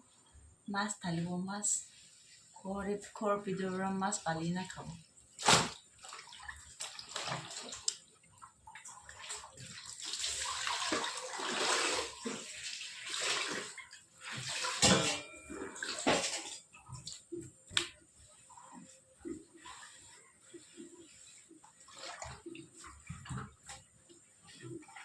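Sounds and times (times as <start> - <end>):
water pouring and splashing: 5.3 - 25.0.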